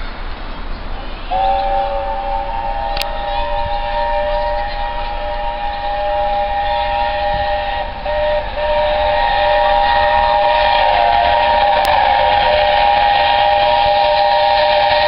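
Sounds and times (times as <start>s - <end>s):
steam locomotive chime whistle: 1.0s - 15.0s.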